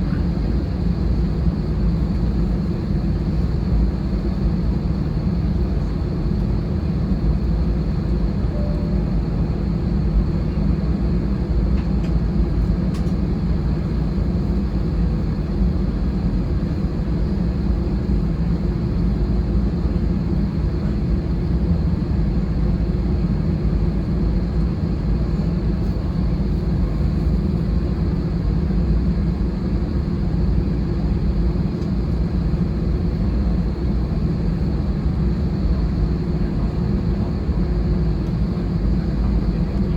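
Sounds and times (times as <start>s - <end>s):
airliner cabin hum and rush: 0.0s - 39.9s
faint high-pitched whine: 8.5s - 9.6s.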